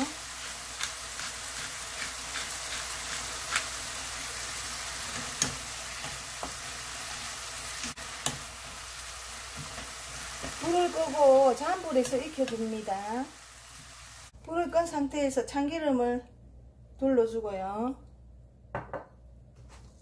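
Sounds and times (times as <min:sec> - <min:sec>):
zucchini sizzling in oil: 0:00.0 - 0:14.4.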